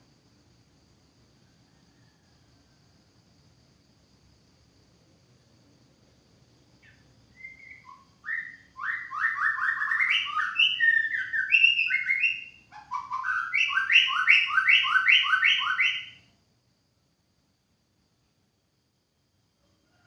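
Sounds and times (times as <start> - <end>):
bird singing whistled notes: 6.8 - 16.3.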